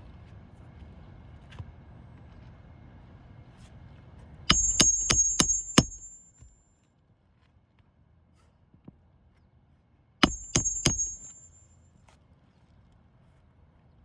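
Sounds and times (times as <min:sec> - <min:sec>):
hammer driving nails: 0:04.5 - 0:06.3, 0:10.2 - 0:11.6
high thin ringing tone: 0:04.5 - 0:06.4, 0:10.2 - 0:11.7.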